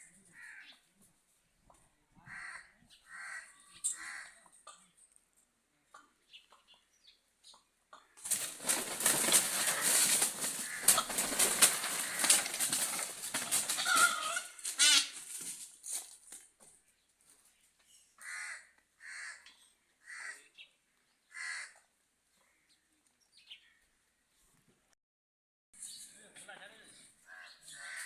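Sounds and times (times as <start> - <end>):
short caw-like bird calls: 2.3 - 4.4, 9.5 - 15.4, 18.2 - 20.4, 21.3 - 21.8
birds squawking: 8.2 - 15.5
wings flapping: 8.2 - 16.4.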